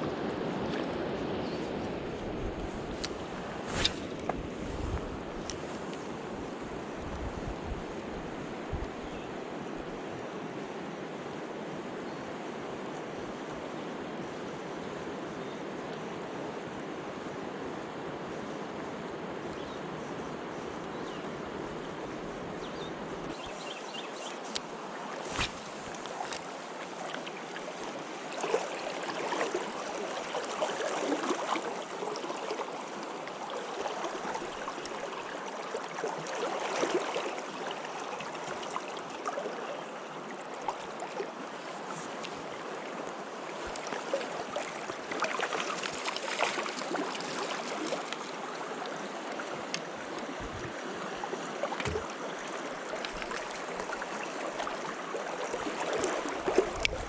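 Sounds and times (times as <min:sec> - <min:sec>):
stream water rushing: 0:23.3 - 0:57.0.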